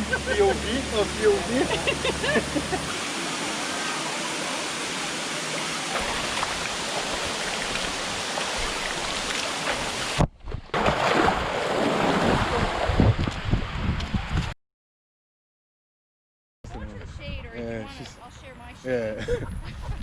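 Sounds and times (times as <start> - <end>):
waterfall rushing: 0.0 - 10.2
wind rumble on microphone: 12.1 - 14.6, 16.7 - 17.6, 19.2 - 20.0.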